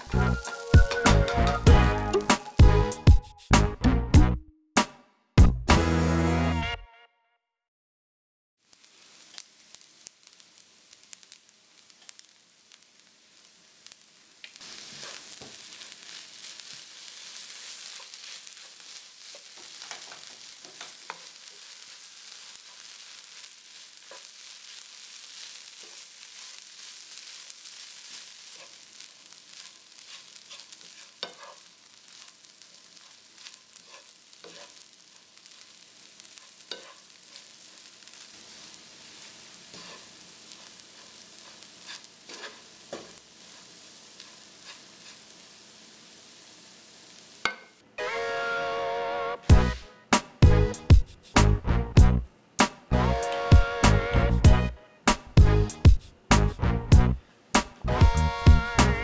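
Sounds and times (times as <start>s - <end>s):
food sizzling in a hot pan: 0.0s - 3.6s, 8.6s - 59.0s
wooden spatula scraping a pan: 14.6s - 45.4s.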